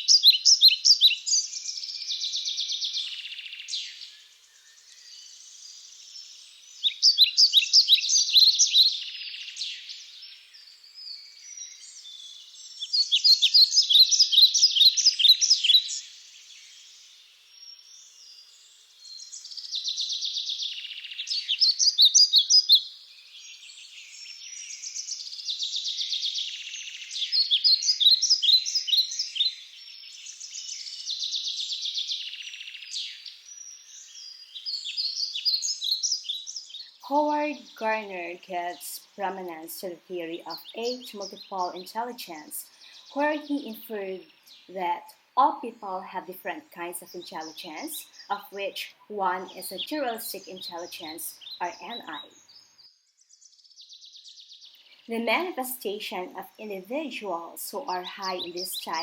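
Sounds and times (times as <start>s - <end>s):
high hiss of birds or insects: 0.0s - 37.8s.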